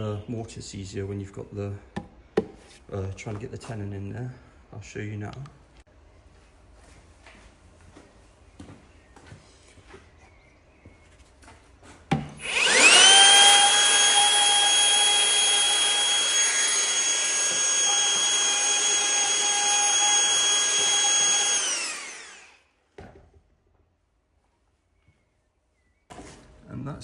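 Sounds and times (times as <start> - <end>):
electric router high whine: 12.4 - 22.7.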